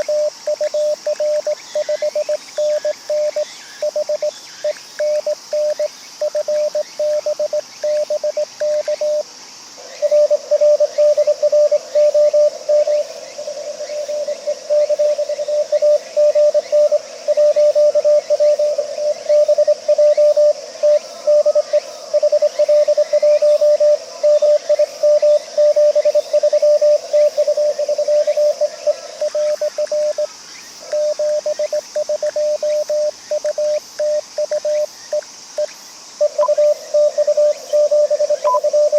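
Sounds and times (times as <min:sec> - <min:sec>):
morse code tone: 0:36.2 - 0:38.9.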